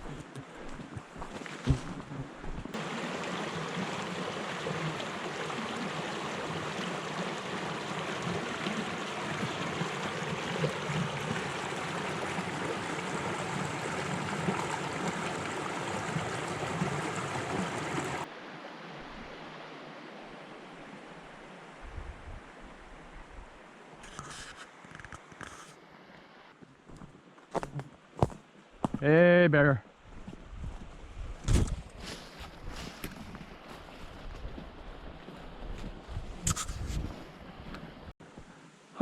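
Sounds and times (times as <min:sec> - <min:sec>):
stream water rushing: 0:02.5 - 0:24.1.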